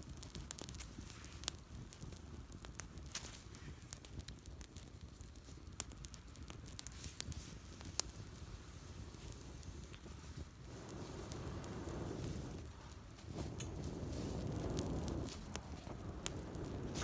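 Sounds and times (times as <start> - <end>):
campfire crackling: 0.0 - 17.0
sharp pops of fire: 0.0 - 17.0
rustling rushing noise: 10.6 - 17.0.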